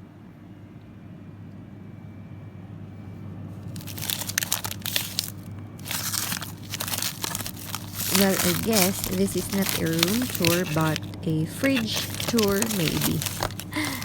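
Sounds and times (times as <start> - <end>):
steady low hum: 3.0 - 14.0
plastic bags crinkling: 3.6 - 14.0.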